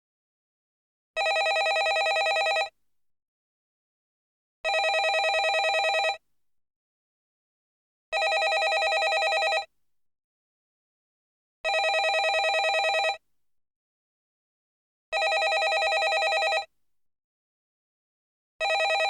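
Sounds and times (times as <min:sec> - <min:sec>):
telephone ringing: 0:01.2 - 0:02.7, 0:04.7 - 0:06.2, 0:08.2 - 0:09.7, 0:11.7 - 0:13.2, 0:15.2 - 0:16.7, 0:18.6 - 0:19.0.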